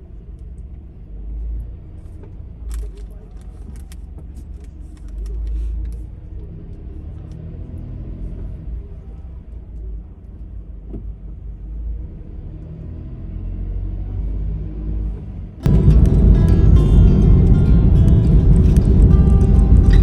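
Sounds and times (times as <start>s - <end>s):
car road and engine noise: 0.0s - 20.0s
sudden loud sound: 15.6s - 20.0s.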